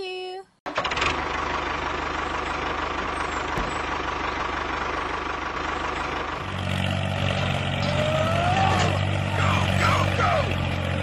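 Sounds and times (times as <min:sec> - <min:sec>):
tractor engine running: 0:00.7 - 0:11.0
deep engine hum: 0:00.8 - 0:11.0.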